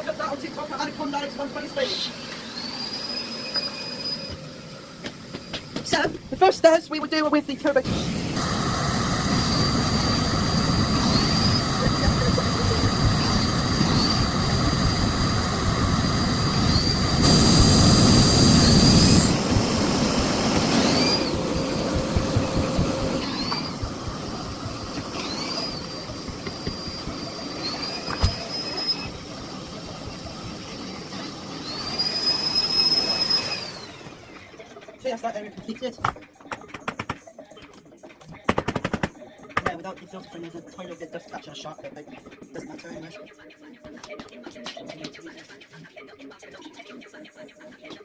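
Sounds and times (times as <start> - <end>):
vacuum cleaner motor whine: 0.0 - 34.8.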